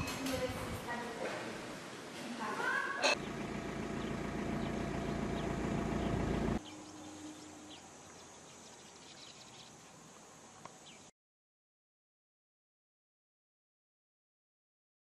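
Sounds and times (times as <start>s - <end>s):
vehicle engine rumbling: 3.1s - 6.7s.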